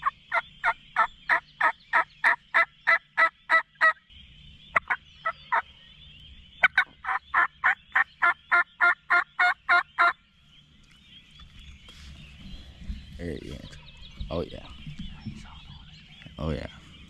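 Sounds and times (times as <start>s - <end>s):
turkey yelps: 0.0s - 4.0s, 6.6s - 10.2s.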